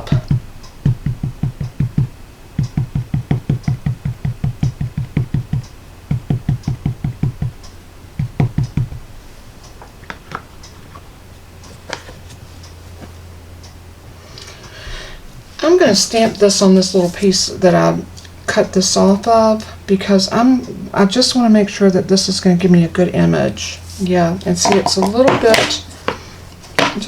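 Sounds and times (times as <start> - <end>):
stamp tapping on ink pad: 0.0 - 7.6, 8.2 - 9.0, 24.6 - 26.2.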